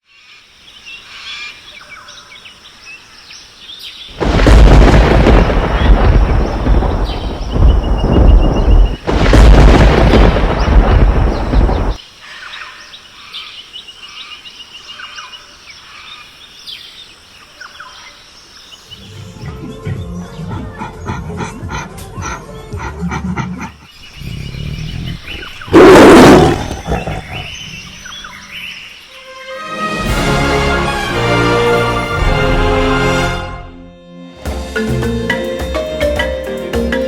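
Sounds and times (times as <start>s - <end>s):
birds chirping: 0.1s - 29.3s
loud thunder rumble: 4.1s - 12.0s, 25.1s - 28.0s.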